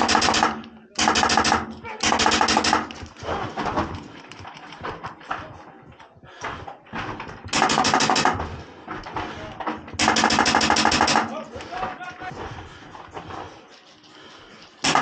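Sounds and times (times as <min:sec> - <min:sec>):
airsoft gun firing: 0:00.0 - 0:03.0, 0:07.5 - 0:08.4, 0:10.0 - 0:11.4.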